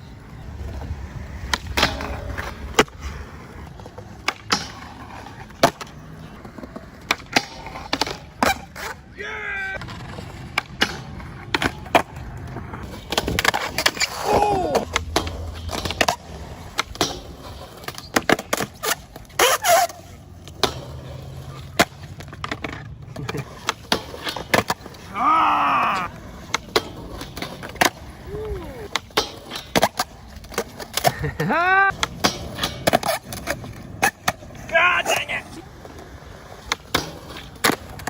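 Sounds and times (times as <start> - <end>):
skateboards clacking: 0.0 - 38.0
skateboards rolling: 0.0 - 38.0
person calling out: 14.2 - 14.9, 25.1 - 26.2, 28.2 - 28.9, 31.4 - 31.9, 34.6 - 35.6.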